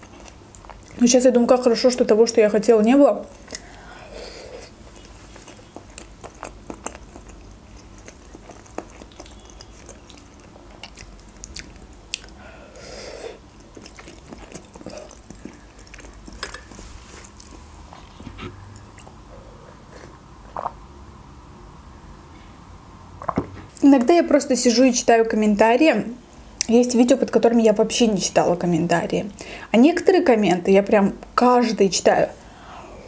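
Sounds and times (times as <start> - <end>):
chewing and biting: 4.6 - 12.4, 13.5 - 17.6.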